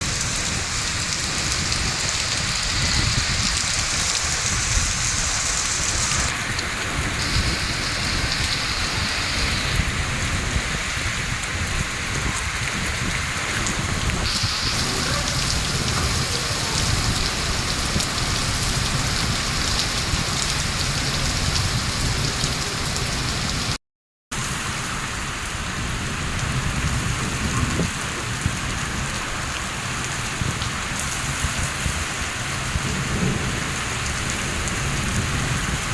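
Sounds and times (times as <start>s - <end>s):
heavy rain falling: 0.0s - 23.8s, 24.4s - 35.9s.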